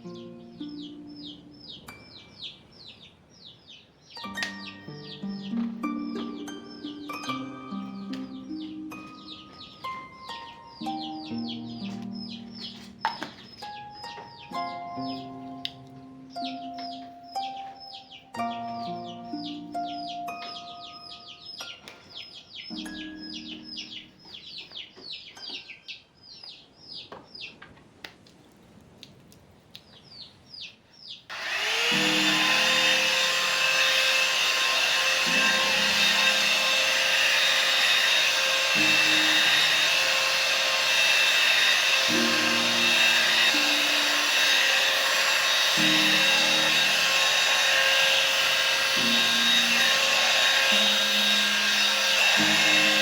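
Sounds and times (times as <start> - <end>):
high bird chirps: 0.0 - 27.6
electric motor appliance whirring: 31.3 - 53.0.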